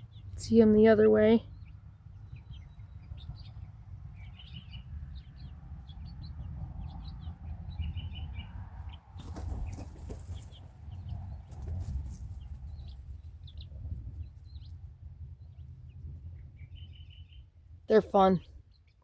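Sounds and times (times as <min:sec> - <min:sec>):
chicks peeping: 0:00.0 - 0:19.0
rustling noise: 0:11.4 - 0:12.8
low steady rumble: 0:12.1 - 0:19.0.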